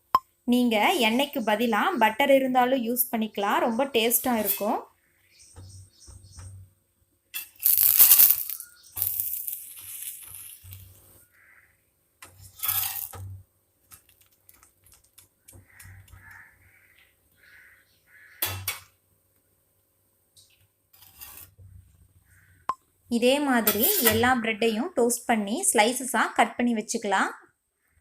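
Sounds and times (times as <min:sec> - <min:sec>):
metal utensil scraping griddle: 0:04.3 - 0:04.8, 0:12.2 - 0:13.4, 0:21.0 - 0:21.6, 0:23.6 - 0:24.3.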